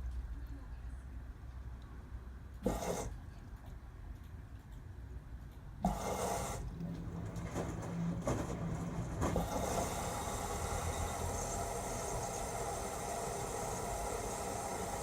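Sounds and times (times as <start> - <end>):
washing machine hum: 5.8 - 15.0
washing machine rushing: 5.8 - 15.0.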